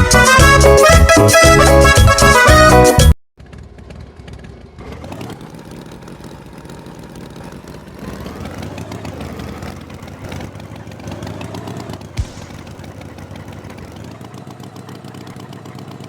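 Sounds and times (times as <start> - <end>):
tractor engine running: 3.4 - 16.0.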